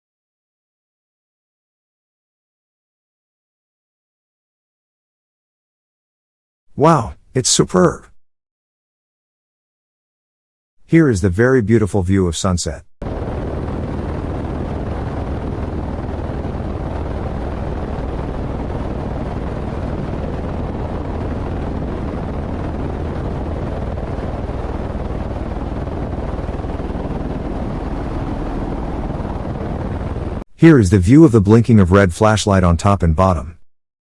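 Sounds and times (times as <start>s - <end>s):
aircraft engine drone: 13.0s - 31.0s.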